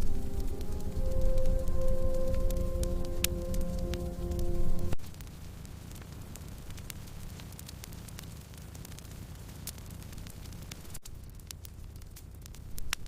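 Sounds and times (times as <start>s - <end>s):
music with sustained tones: 0.0s - 5.0s
wood fire crackling: 0.0s - 13.0s.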